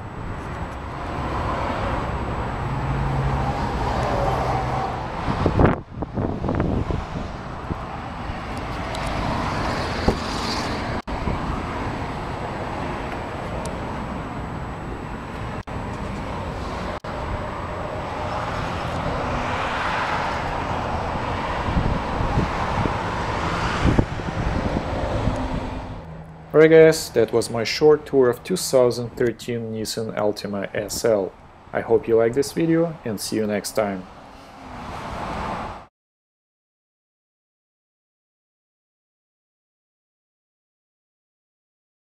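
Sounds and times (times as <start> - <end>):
road traffic: 0.0 - 35.9
wind on microphone: 4.0 - 13.8, 16.5 - 26.0.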